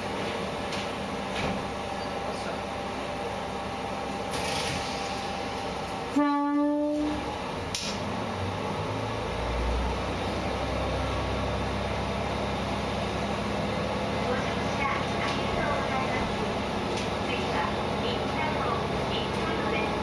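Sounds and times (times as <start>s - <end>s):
train engine low rumble: 0.0s - 20.0s
train horn blast: 6.1s - 7.3s.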